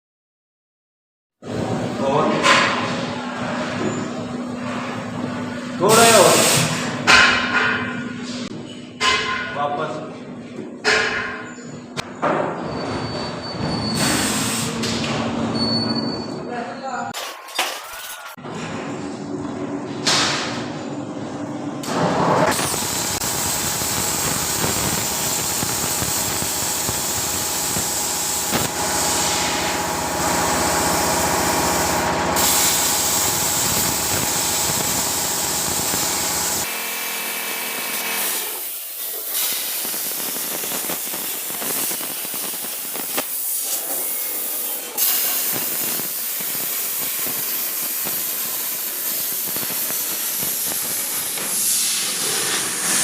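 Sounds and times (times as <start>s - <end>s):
hissing machine noise: 5.4s - 7.8s, 21.8s - 53.0s.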